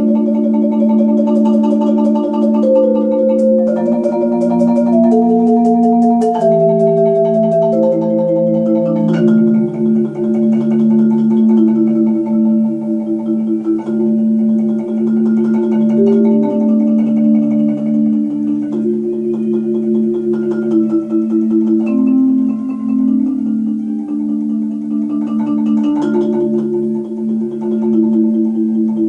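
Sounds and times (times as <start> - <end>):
marimba chords: 0.0 - 29.0.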